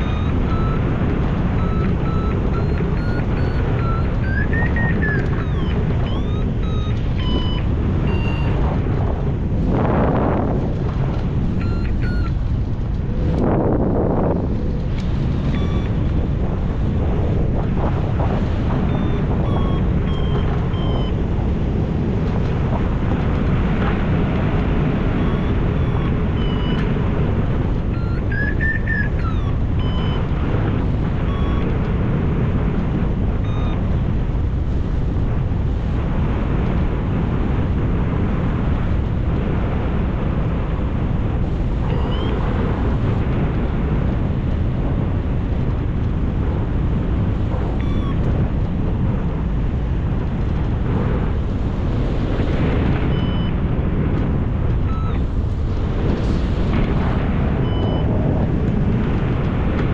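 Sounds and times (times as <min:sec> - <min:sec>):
electronic variometer beeps: 0:00.0 - 0:08.8, 0:11.5 - 0:12.4, 0:15.2 - 0:16.4, 0:18.4 - 0:21.4, 0:24.8 - 0:32.0, 0:33.4 - 0:34.1, 0:41.8 - 0:43.1, 0:47.7 - 0:48.4, 0:52.6 - 0:53.7, 0:54.7 - 0:55.4, 0:57.0 - 0:58.2
wind rushing over microphone: 0:00.0 - 0:59.9.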